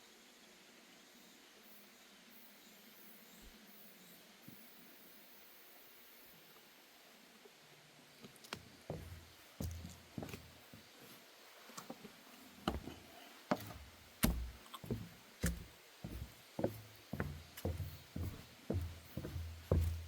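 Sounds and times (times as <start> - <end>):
footsteps on wooden boardwalk: 8.4 - 11.2, 11.8 - 20.0.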